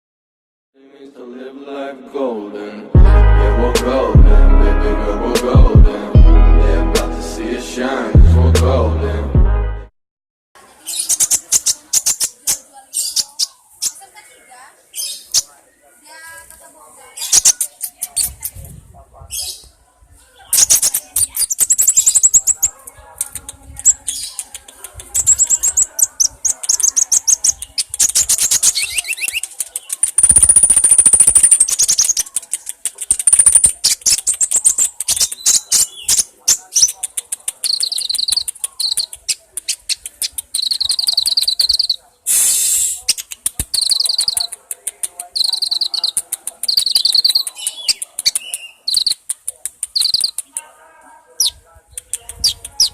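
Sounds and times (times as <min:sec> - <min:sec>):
bird high-pitched trills: 0:20.5 - 0:22.7, 0:25.2 - 0:32.4, 0:33.1 - 0:37.0, 0:37.6 - 0:42.0, 0:43.7 - 0:44.5, 0:45.4 - 0:49.2, 0:49.9 - 0:50.4
sharp clicks: 0:23.2 - 0:42.0, 0:42.8 - 0:50.7, 0:52.0 - 0:52.9.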